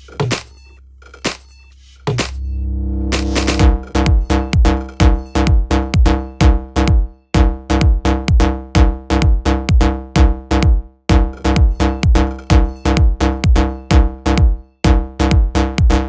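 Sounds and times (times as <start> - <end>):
drum machine beat: 0.0 - 2.5, 3.1 - 16.0
steady synth tones: 2.4 - 6.9
deep kick drum: 3.1 - 16.0.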